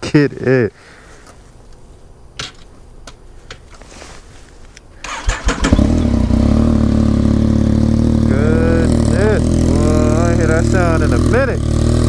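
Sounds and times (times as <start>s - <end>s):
motorcycle starter cranking: 5.0s - 8.3s
motorcycle engine running: 5.2s - 12.0s.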